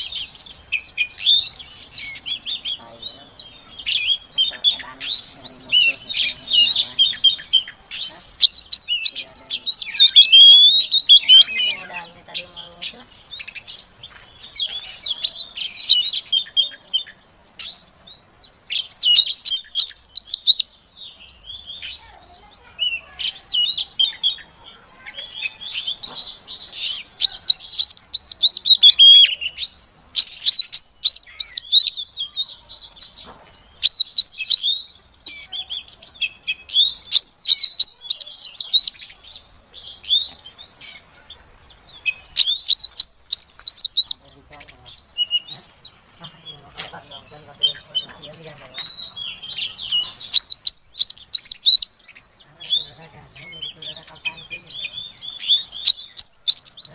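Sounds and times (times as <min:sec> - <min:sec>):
bird chattering call: 0:00.0 - 0:56.9.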